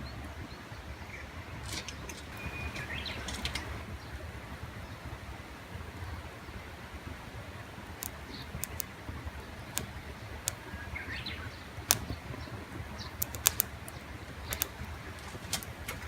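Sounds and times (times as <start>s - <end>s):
campfire crackling and popping: 7.4s - 16.0s.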